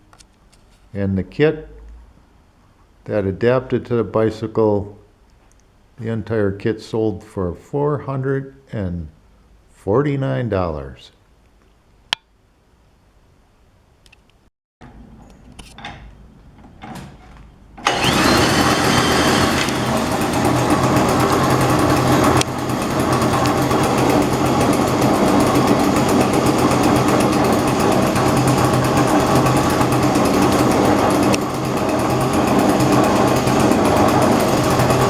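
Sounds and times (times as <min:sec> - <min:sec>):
small bicycle engine running: 0:17.8 - 0:35.0.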